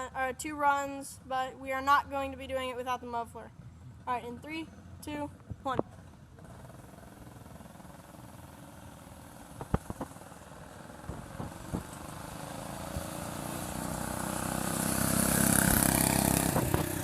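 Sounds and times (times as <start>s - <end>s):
go-kart engine: 3.5s - 17.0s.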